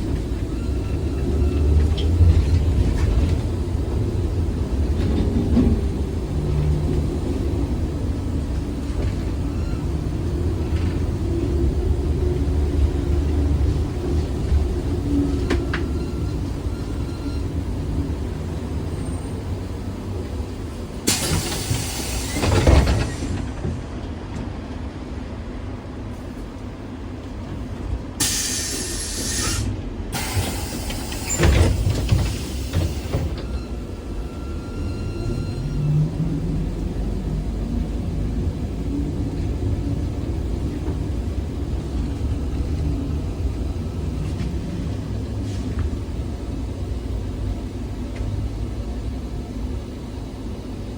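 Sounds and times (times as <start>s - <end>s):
trolleybus rumbling: 0.0s - 50.9s
compressed air hiss: 28.2s - 31.3s.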